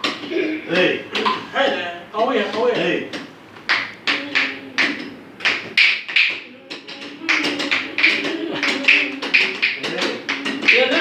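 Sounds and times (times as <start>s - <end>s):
hand percussion strikes: 3.1s - 11.0s
folk singing: 6.4s - 11.0s.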